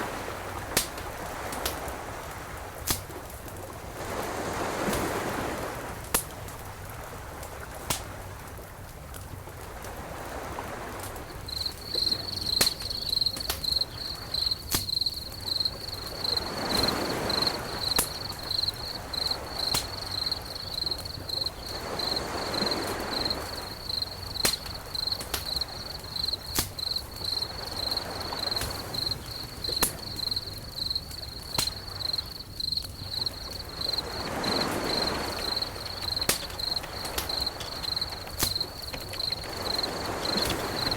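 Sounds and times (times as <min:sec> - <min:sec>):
surf-like rushing: 0:09.7 - 0:40.9
cricket chirping: 0:10.2 - 0:40.9
sharp clicks: 0:24.0 - 0:27.0, 0:35.0 - 0:40.9.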